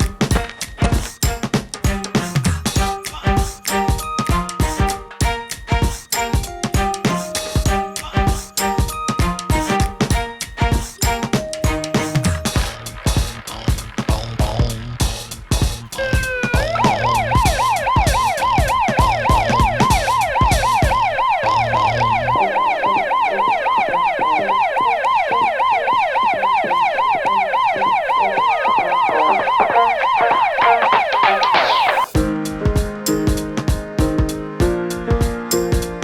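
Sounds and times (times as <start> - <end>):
music with a beat: 0.0 - 21.0, 30.9 - 36.0
emergency siren wailing: 16.0 - 32.1.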